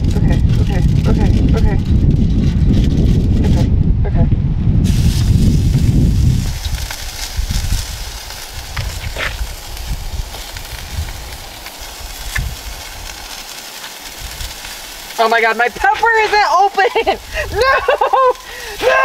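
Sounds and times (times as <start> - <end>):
low rumble: 0.0 - 13.2
burgers sizzling in a hot pan: 4.8 - 19.0.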